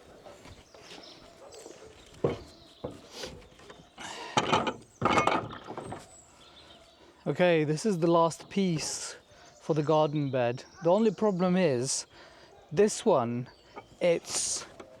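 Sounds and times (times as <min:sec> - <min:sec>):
wooden boards knocking and clattering: 0:02.1 - 0:06.1.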